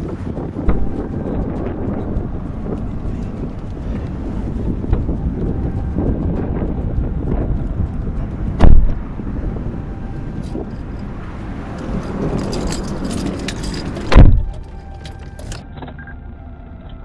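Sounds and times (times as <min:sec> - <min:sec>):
wind on microphone: 0:00.0 - 0:15.6
car door slamming: 0:00.6 - 0:00.9, 0:08.6 - 0:09.0, 0:12.2 - 0:15.6
light clicking and rattling: 0:11.7 - 0:15.6.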